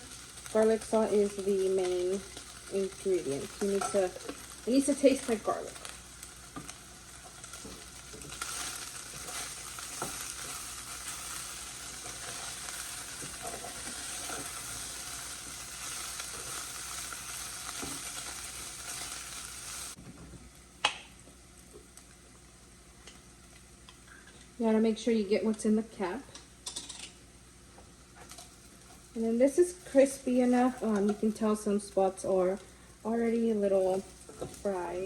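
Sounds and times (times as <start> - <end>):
chicken frying in oil: 0.0 - 20.0.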